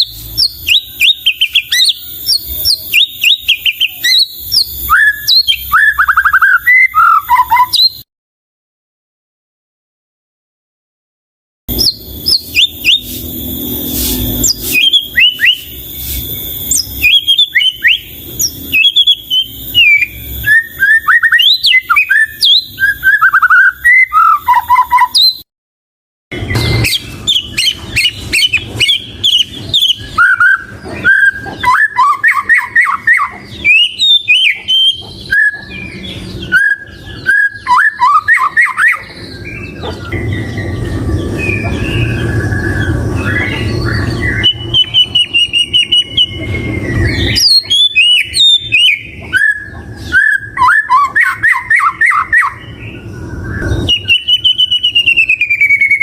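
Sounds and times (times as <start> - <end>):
bird singing whistled notes: 0.0 - 8.0, 11.7 - 25.4, 26.4 - 56.0.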